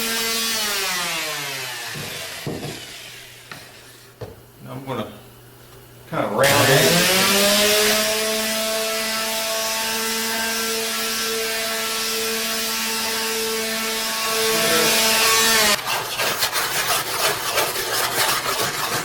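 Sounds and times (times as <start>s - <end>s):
power tool cutting wood: 0.0s - 3.4s, 6.4s - 16.5s.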